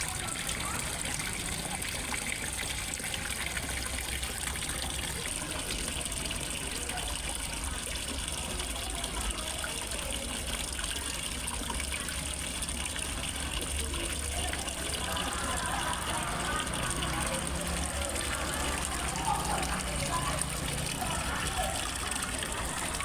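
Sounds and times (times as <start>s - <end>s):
waterfall gushing and trickling: 0.0s - 23.0s.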